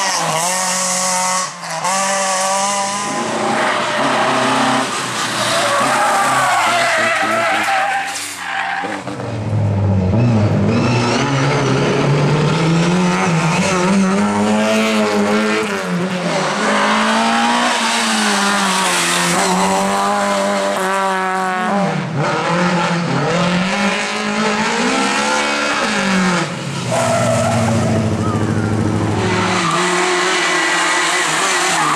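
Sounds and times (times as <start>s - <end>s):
rally car engine revving: 0.0s - 31.9s
tyre squeal: 3.1s - 9.1s.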